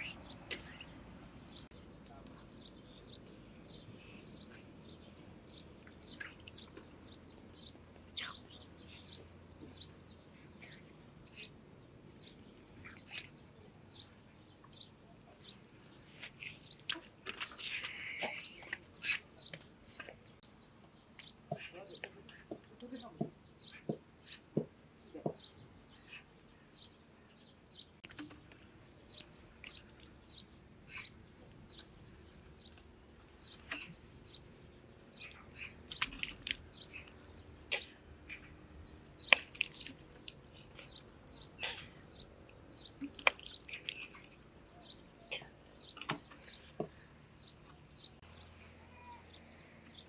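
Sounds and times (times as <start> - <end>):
birds chirping: 0.0 - 50.0.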